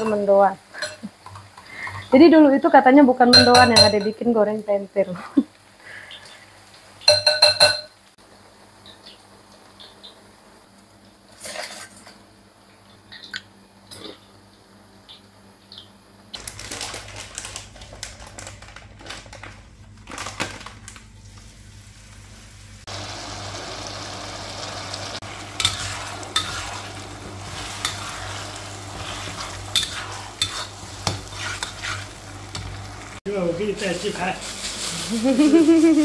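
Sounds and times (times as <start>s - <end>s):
kitchen utensils clinking: 0.0s - 2.1s, 3.3s - 4.3s, 7.0s - 8.0s
food sizzling in a wok: 0.0s - 11.8s, 21.3s - 36.0s
metal spoon scraping a wok: 25.6s - 32.7s.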